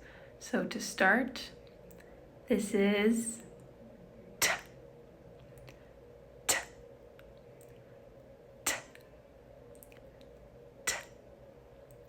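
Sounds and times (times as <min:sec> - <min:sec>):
woman saying consonant t: 0:02.5 - 0:03.4.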